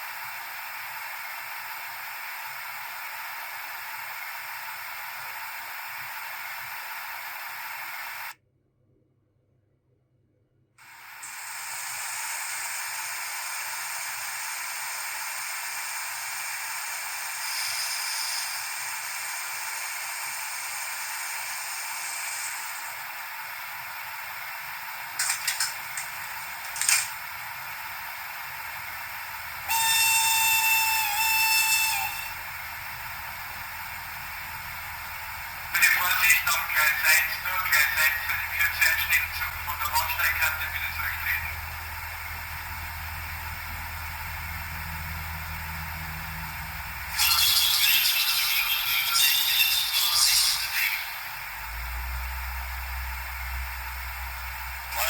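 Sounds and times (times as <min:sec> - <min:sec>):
steady steam hiss from loudspeaker: 0:10.9 - 0:55.0
locomotive horn blast: 0:29.6 - 0:32.5.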